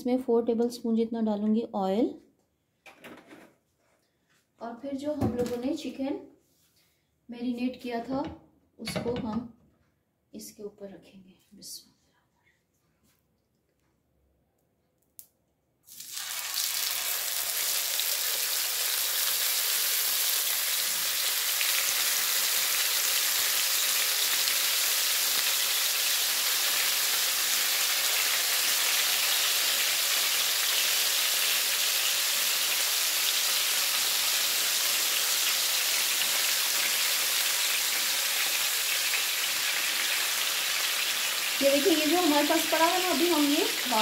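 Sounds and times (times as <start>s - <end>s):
chicken sizzling in hot oil: 15.9s - 44.0s.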